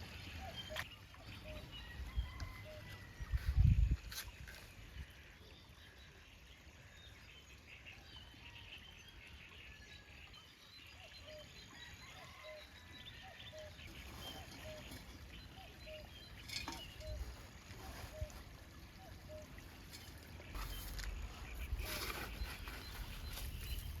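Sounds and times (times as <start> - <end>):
birds chirping: 0.0 - 4.7, 13.1 - 24.0.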